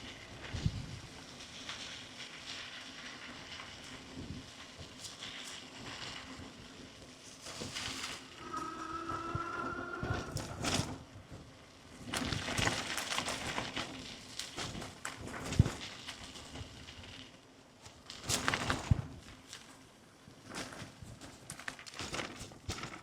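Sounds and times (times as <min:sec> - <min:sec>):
electric motor whine: 0:08.4 - 0:10.7
bicycle rattling over bumps: 0:12.0 - 0:17.4, 0:18.1 - 0:23.0.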